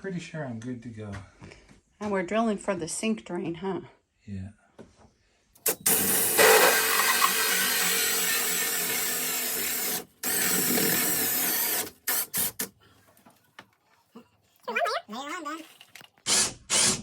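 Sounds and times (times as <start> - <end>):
power drill boring through floor: 5.6 - 12.7, 16.3 - 17.0.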